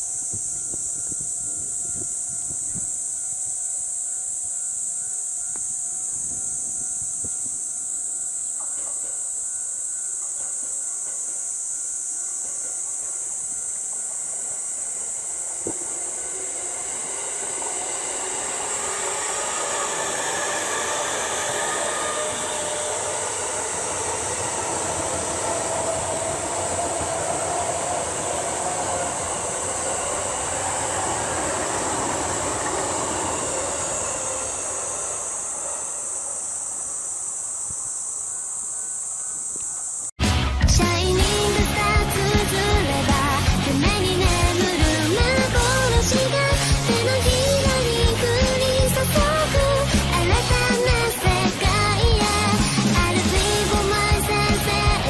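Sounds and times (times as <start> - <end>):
steady high hiss: 0.0 - 40.2
train running noise: 0.0 - 55.0.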